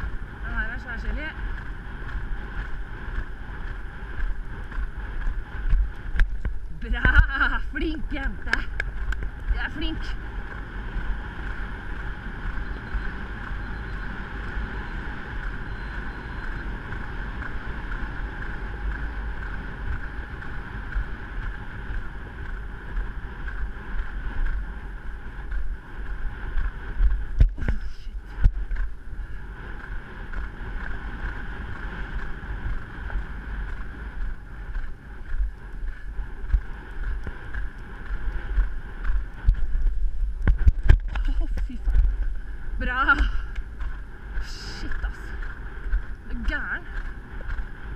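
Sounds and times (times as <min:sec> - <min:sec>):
wind rushing over microphone: 0:00.0 - 0:47.9.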